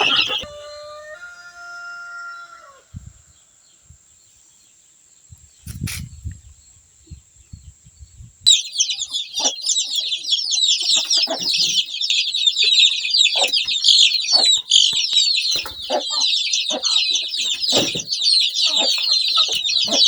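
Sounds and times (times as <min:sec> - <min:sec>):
dense high chirping: 0:00.0 - 0:00.5, 0:08.5 - 0:20.0
rooster crowing: 0:00.0 - 0:03.0.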